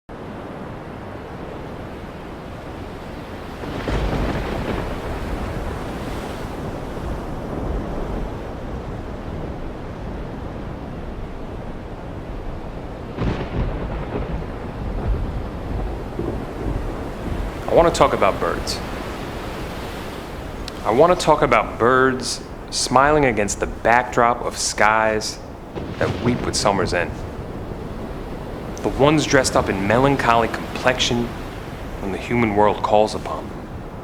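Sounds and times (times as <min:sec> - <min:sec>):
low rumbling rushing noise: 0:11.1 - 0:33.4.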